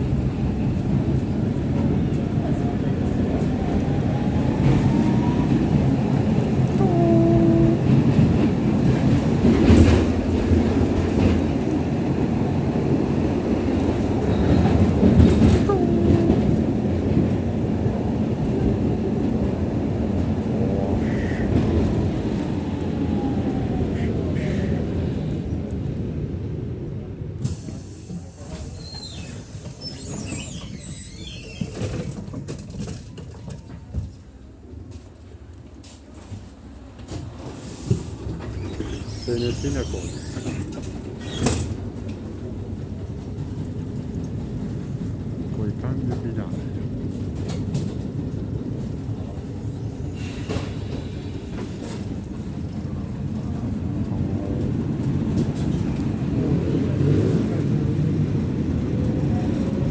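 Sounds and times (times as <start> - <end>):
tram rumbling on track: 0.0 - 59.9
wheel squeal: 28.6 - 32.2, 38.4 - 41.7.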